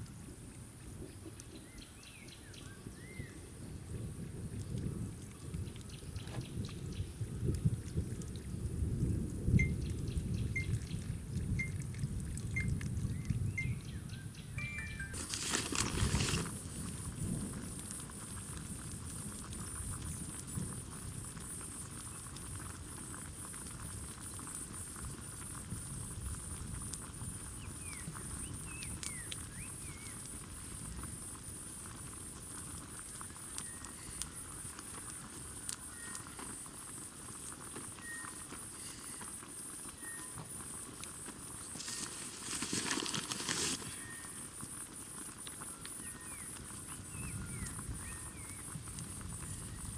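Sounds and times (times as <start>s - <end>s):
rain pattering: 2.8s - 14.1s, 15.1s - 49.9s
faint chirps: 12.6s - 15.3s, 37.9s - 40.6s.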